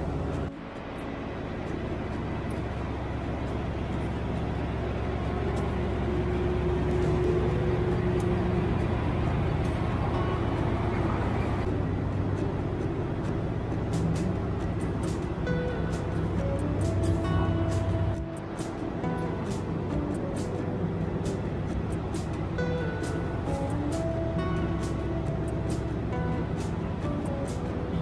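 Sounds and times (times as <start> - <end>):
diesel train engine rumbling: 0.0 - 28.0.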